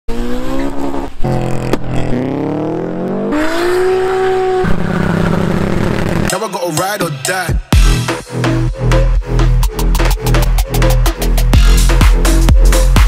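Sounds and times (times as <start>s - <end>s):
cars accelerating hard: 0.1s - 6.3s.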